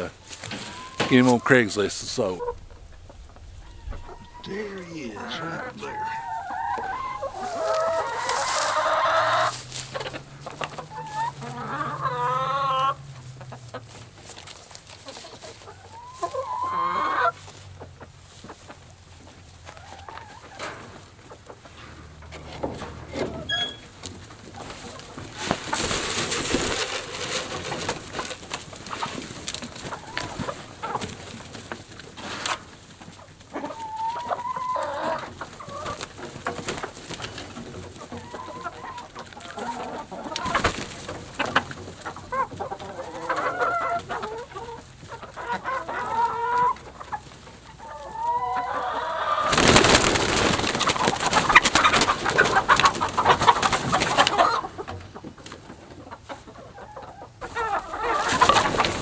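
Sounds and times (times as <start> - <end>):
chickens clucking: 0.0 - 59.0
loud noisy scuffle: 7.2 - 11.7.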